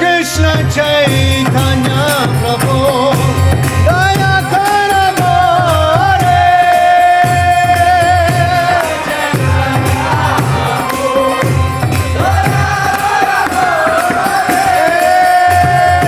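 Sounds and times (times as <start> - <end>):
jangling percussion: 0.0 - 16.0
voices singing devotional melody: 0.0 - 16.0
low drum beat: 9.4 - 16.0.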